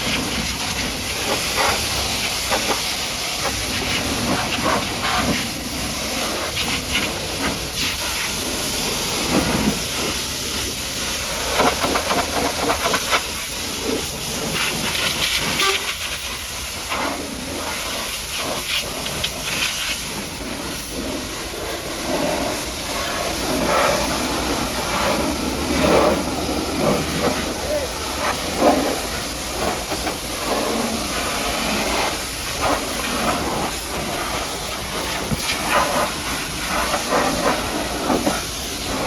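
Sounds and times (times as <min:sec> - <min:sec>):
pressure washer spraying water: 0:00.0 - 0:39.0.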